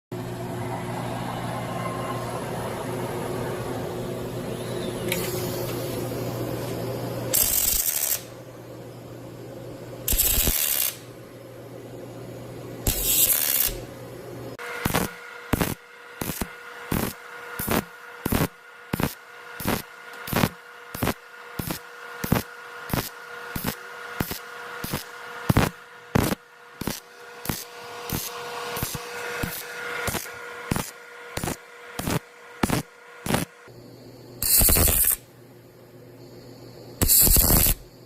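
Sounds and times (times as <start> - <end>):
steady electrical hum: 0.2 - 38.0
welding arc crackling bursts: 7.3 - 8.4, 10.1 - 11.1, 12.8 - 13.9, 14.6 - 33.7, 34.4 - 35.2, 37.0 - 37.9.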